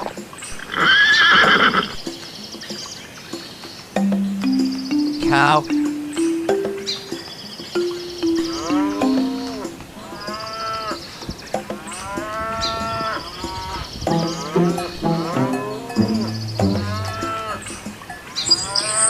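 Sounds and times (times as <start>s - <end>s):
cow mooing: 16.8s - 17.6s.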